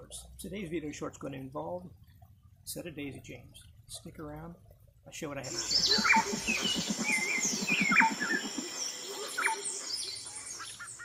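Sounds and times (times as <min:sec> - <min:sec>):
rapid low pulsing: 0:05.5 - 0:10.4
birds chirping and whistling: 0:05.5 - 0:11.0.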